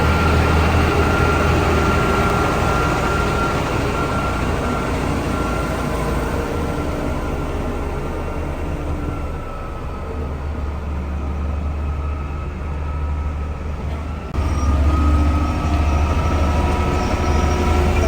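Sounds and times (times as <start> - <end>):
diesel construction machinery rumble: 0.0 - 18.0.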